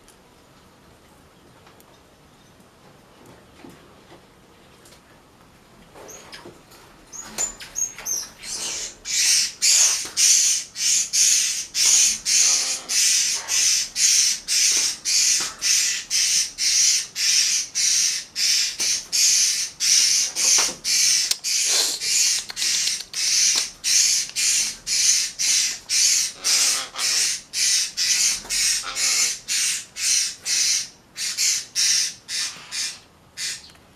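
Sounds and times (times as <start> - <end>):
parakeet screeching: 7.8 - 33.7.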